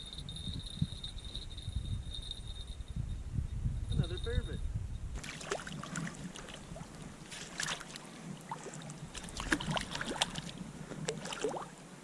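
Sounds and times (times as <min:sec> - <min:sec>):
water splashing and trickling: 0:05.2 - 0:11.9.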